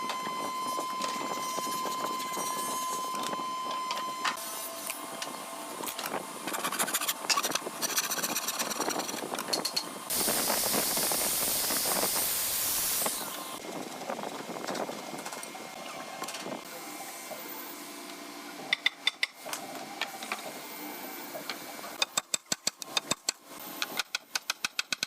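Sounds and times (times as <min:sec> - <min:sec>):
compressed air hissing: 0:10.1 - 0:13.4.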